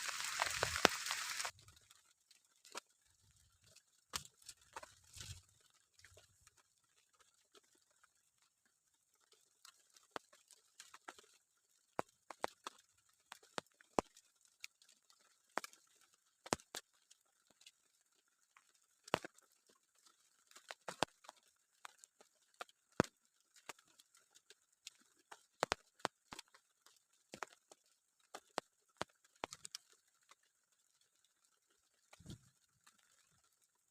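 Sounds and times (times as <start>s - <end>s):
faint steady hiss: 0.0s - 1.6s
rain drops tapping: 0.0s - 6.6s, 9.6s - 30.4s.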